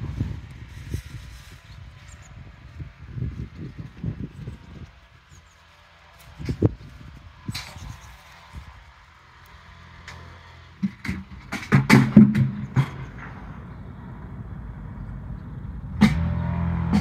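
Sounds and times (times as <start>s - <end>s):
diesel engine starting and idling: 8.1s - 17.0s
loud steady low sound: 13.2s - 17.0s.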